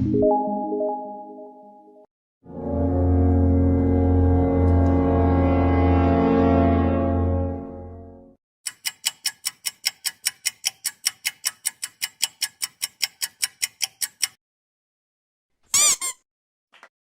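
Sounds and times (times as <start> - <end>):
clock ticking: 8.7 - 14.4.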